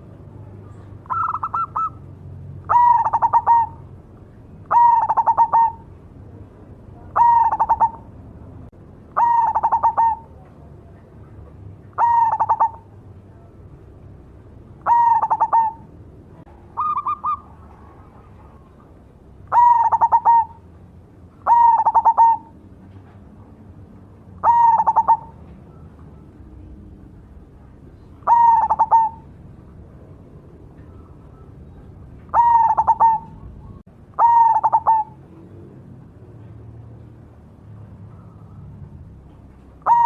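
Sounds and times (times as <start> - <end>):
dove cooing: 0.7 - 4.0, 4.6 - 6.0, 7.0 - 8.2, 9.2 - 10.5, 11.9 - 13.0, 14.8 - 16.0, 16.7 - 20.6, 21.4 - 22.6, 24.4 - 26.7, 28.0 - 29.3, 30.8 - 35.8, 39.8 - 40.0.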